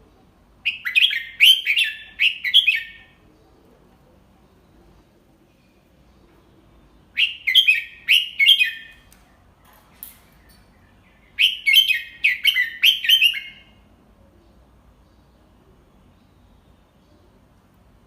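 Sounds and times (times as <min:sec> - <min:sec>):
bulbul singing: 0:00.6 - 0:03.2, 0:05.8 - 0:17.6.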